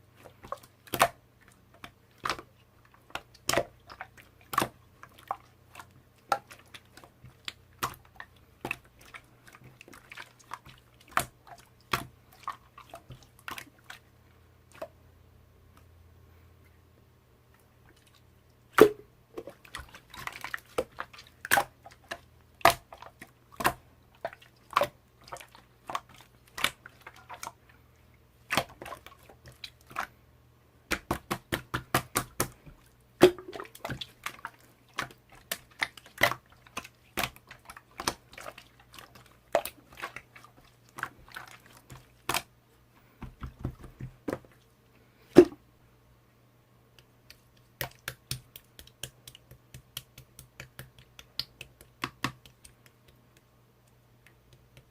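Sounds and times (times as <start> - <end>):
slime popping and squelching: 18.7 - 27.6, 28.4 - 30.1, 30.9 - 42.5.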